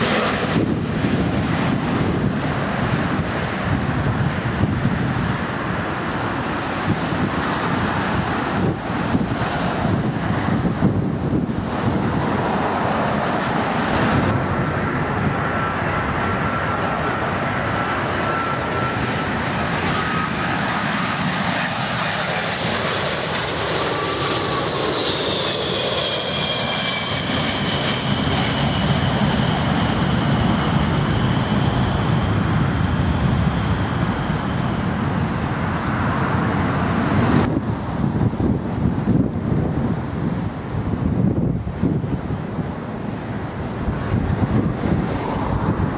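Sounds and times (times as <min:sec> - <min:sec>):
jet engines passing: 0:00.0 - 0:45.9.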